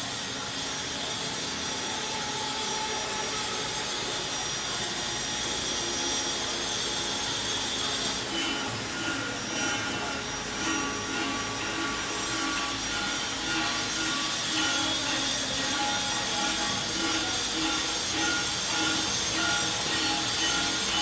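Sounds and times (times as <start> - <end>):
spindle high whine: 0.1 - 21.0
stone grinding hiss: 5.3 - 21.0.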